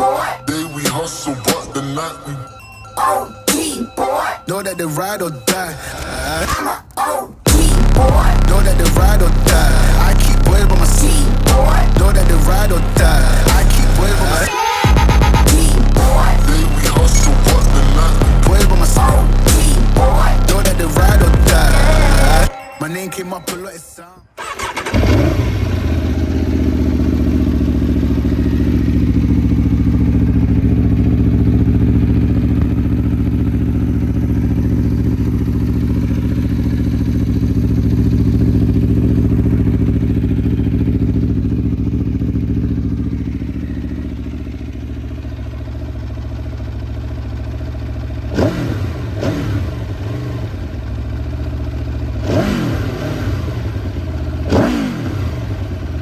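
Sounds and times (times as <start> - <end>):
motorcycle engine idling: 7.4 - 22.5, 24.4 - 56.0
motorcycle throttle revving: 24.4 - 56.0.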